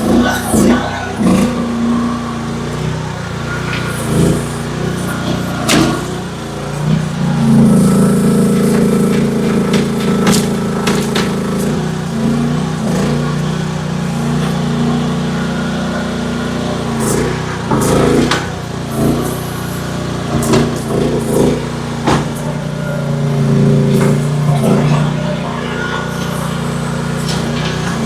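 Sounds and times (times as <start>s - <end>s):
excavator engine running: 0.0s - 28.0s
bucket knocking on wood: 7.6s - 12.5s.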